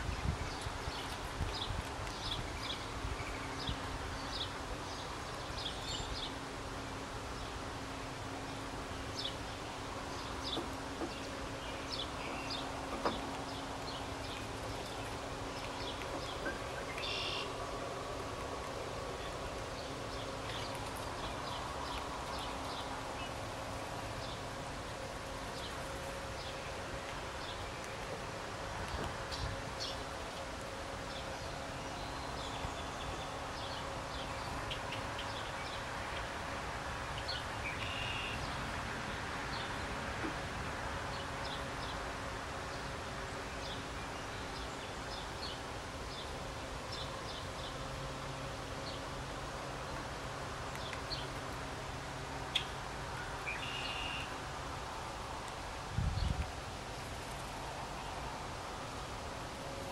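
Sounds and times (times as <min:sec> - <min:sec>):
faint steady hum: 0:00.0 - 0:59.9
outdoor background hiss: 0:00.0 - 0:59.9
bird chirping: 0:10.1 - 0:17.5.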